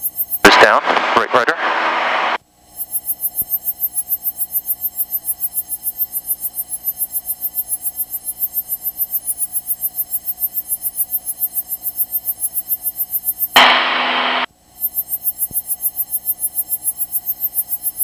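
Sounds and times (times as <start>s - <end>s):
pulsing electronic buzz: 13.6s - 14.5s.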